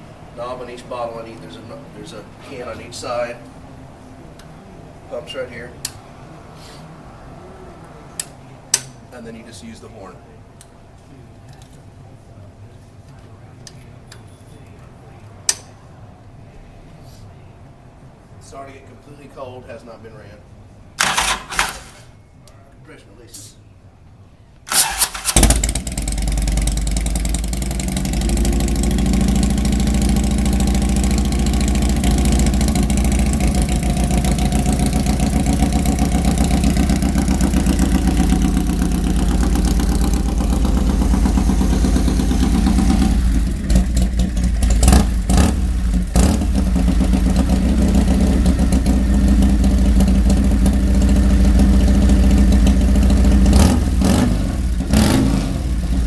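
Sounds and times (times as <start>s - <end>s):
motorcycle engine idling: 24.9s - 54.9s.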